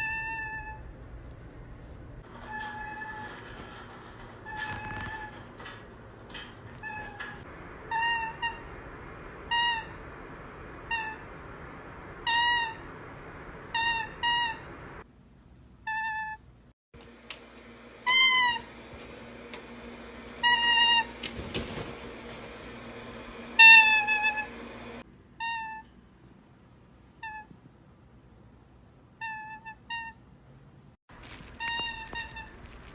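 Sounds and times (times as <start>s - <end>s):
meow-like calls: 0.0s - 0.9s, 23.6s - 24.5s, 25.4s - 25.9s.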